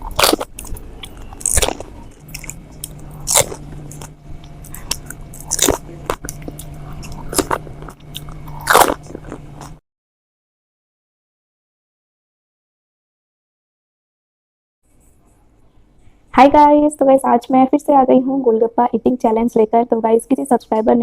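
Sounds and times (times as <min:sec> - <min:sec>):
faint steady hum: 0:00.0 - 0:09.8, 0:14.9 - 0:21.0
loud crunches of biting: 0:00.0 - 0:09.8.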